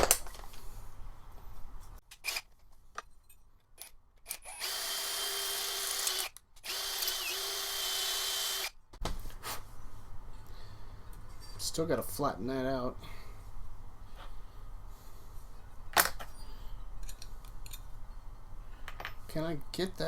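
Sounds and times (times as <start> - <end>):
electric drill running: 4.3 - 8.8.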